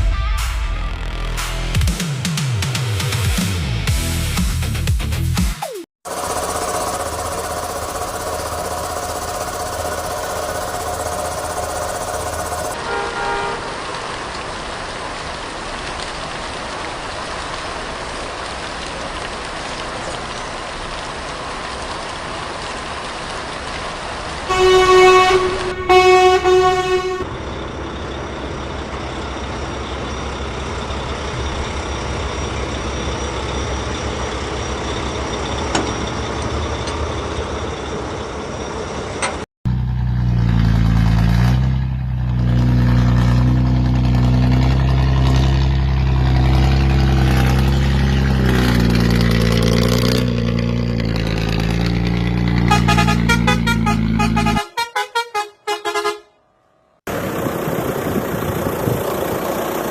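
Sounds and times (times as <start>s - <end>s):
lower louder engine sound: 6.1s - 14.4s, 21.1s - 56.3s, 57.1s - 59.9s
vehicle engine humming: 6.1s - 15.1s, 23.2s - 56.3s, 57.1s - 59.9s
horn honks: 11.1s - 13.8s, 24.5s - 27.3s, 52.6s - 56.4s.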